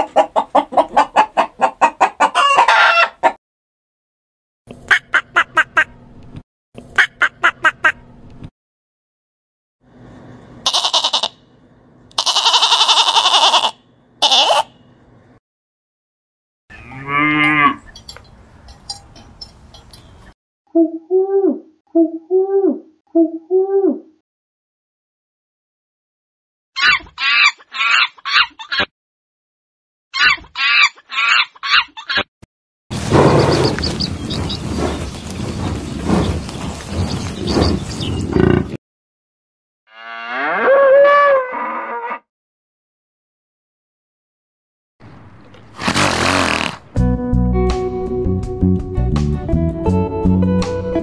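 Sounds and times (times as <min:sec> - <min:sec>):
goat bleating: 0:10.6 - 0:11.4, 0:12.1 - 0:14.7
monkey chattering cries: 0:12.2 - 0:14.7, 0:26.8 - 0:28.9, 0:30.2 - 0:32.2.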